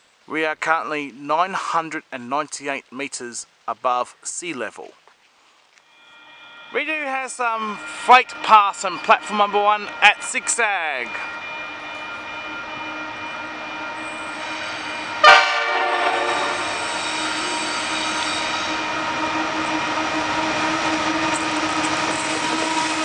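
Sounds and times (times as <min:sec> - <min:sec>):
diesel locomotive engine drone: 0:05.9 - 0:23.0
train horn blast: 0:11.4 - 0:23.0.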